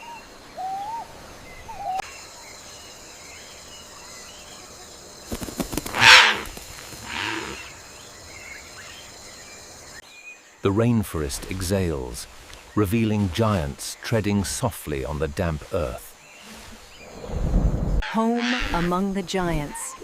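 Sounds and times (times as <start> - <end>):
harsh rasping animal call: 5.9 - 7.7
short chirping calls: 5.9 - 7.7.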